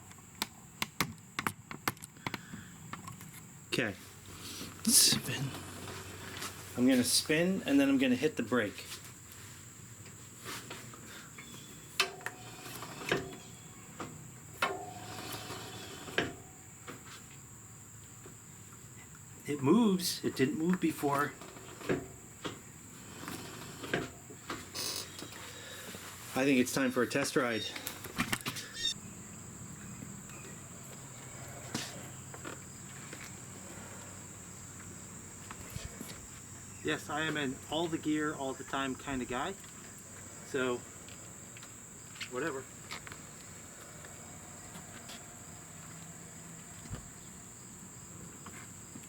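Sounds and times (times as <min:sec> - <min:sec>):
insects trilling: 0:02.2 - 0:49.0.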